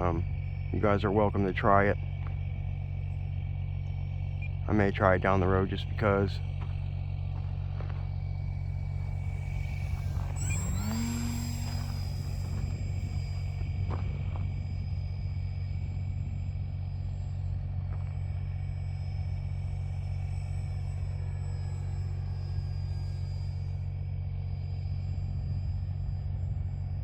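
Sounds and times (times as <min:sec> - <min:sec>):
constant low rumble: 0:00.0 - 0:27.0
electric motor whining: 0:07.0 - 0:27.0.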